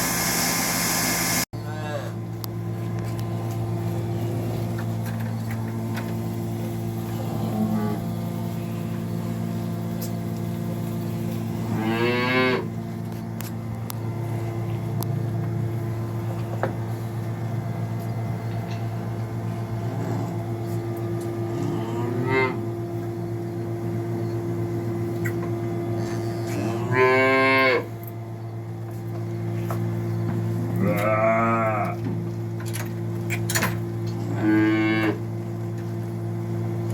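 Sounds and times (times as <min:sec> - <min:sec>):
steady mechanical hum: 0:00.0 - 0:36.9
cows mooing: 0:07.1 - 0:08.2, 0:11.5 - 0:12.7, 0:21.5 - 0:22.7, 0:26.1 - 0:27.9, 0:30.7 - 0:32.0, 0:34.2 - 0:35.3.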